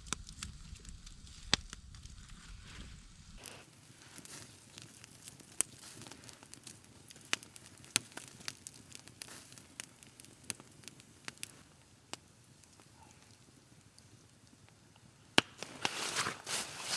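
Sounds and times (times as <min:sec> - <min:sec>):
campfire crackling: 0:03.4 - 0:16.9.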